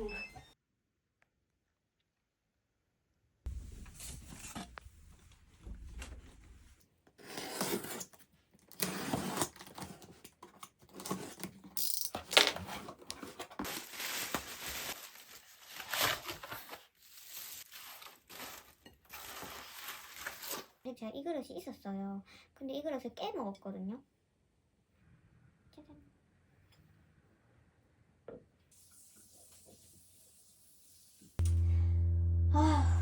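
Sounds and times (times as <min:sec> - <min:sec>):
packaging tearing and crinkling: 0:13.5 - 0:20.8
low hum: 0:31.4 - 0:33.0.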